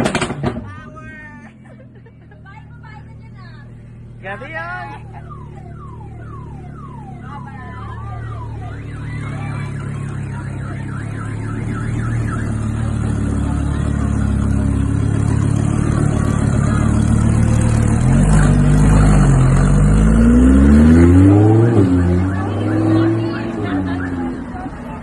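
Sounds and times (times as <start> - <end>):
warbling siren-like alarm: 4.9 - 12.9, 20.6 - 24.6
car engine revving: 8.4 - 24.8.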